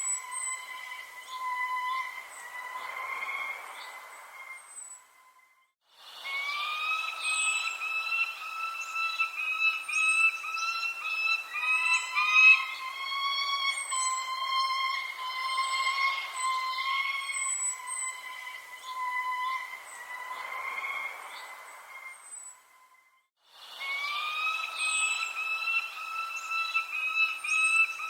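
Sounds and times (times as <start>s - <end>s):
birds whistling: 0.0s - 5.1s, 6.2s - 22.6s, 23.8s - 28.0s
high bird chirps: 6.5s - 20.5s, 24.0s - 28.0s.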